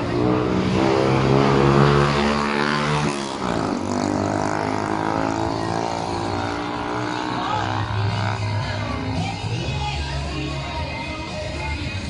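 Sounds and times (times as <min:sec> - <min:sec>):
vehicle engine passing by: 0:00.0 - 0:09.2.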